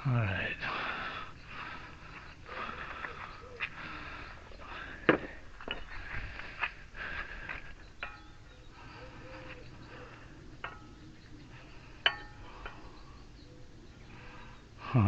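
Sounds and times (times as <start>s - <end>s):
metal tools clinking: 5.5s - 6.2s, 11.9s - 12.9s.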